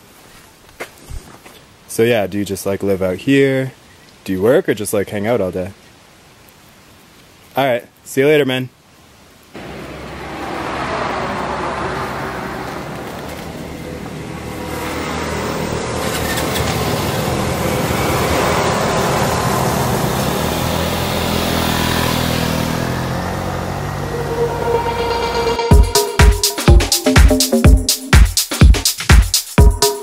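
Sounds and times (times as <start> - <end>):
wind and road noise: 9.0 - 25.6.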